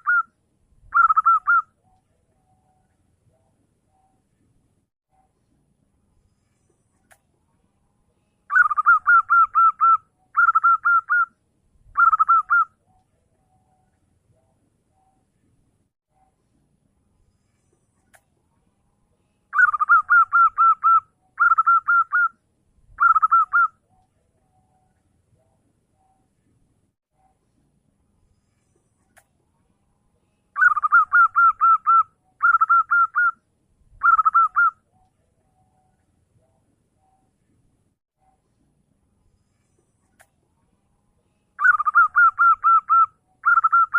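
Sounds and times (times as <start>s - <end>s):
dove cooing: 0.9s - 1.6s, 8.5s - 11.3s, 12.0s - 12.7s, 19.6s - 22.3s, 23.0s - 23.7s, 30.6s - 33.4s, 34.0s - 34.7s, 41.6s - 43.9s.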